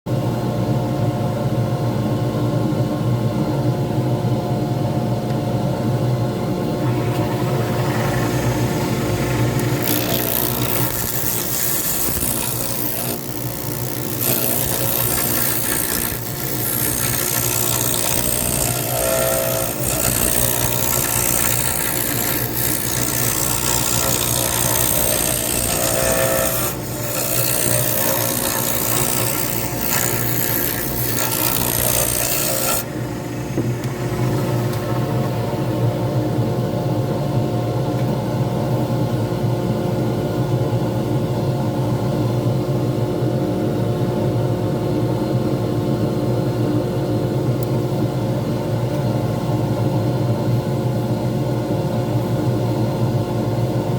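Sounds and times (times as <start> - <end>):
lathe motor hum: 6.7 - 37.4
turning tool scraping resin: 6.8 - 35.3.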